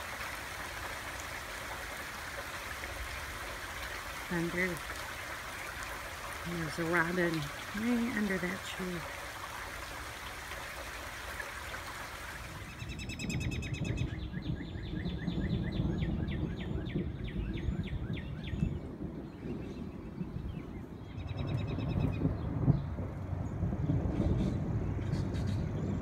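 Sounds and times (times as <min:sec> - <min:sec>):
rain hiss: 0:00.0 - 0:12.9.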